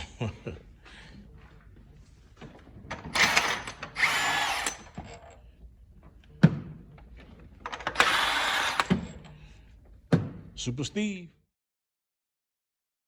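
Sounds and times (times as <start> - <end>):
power tool bursts: 3.1 - 5.1, 7.8 - 9.2.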